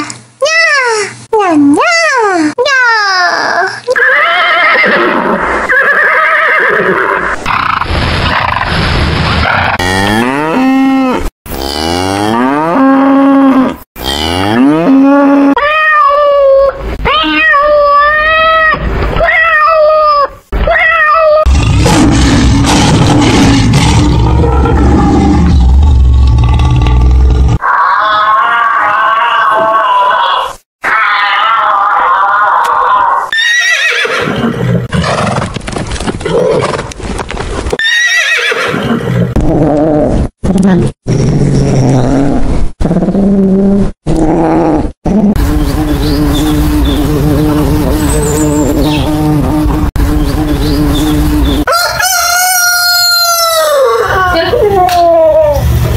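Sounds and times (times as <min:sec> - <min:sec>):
horse whinnying: 0:03.9 - 0:07.3, 0:33.3 - 0:35.5, 0:37.8 - 0:39.3
cow mooing: 0:09.8 - 0:15.5.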